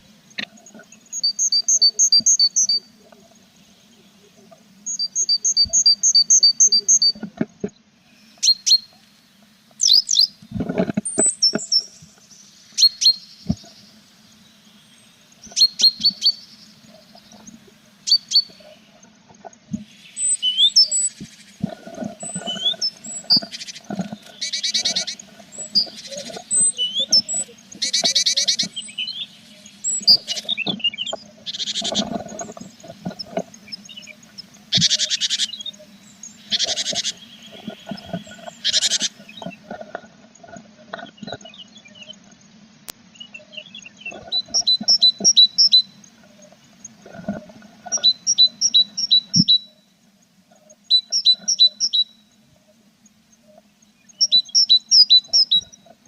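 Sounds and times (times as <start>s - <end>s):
birds chirping: 0.0s - 56.0s
nestlings buzzy begging calls: 15.3s - 19.0s, 19.9s - 39.8s, 43.6s - 47.0s.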